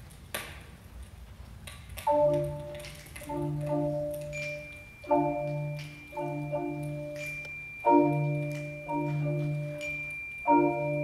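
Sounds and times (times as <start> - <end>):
mallet percussion chords: 2.1 - 11.0
faint high steady tone: 3.8 - 11.0.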